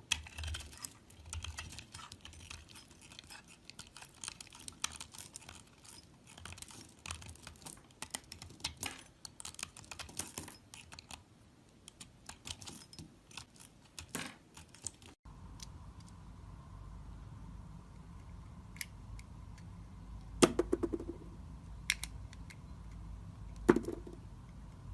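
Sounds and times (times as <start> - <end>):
blade scraping through soap: 0.1 - 7.6.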